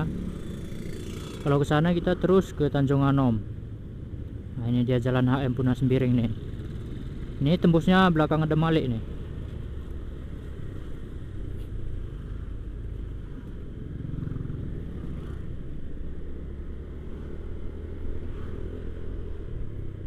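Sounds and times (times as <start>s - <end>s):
road and wind noise: 0.0s - 20.0s
motorcycle engine running: 12.2s - 18.2s.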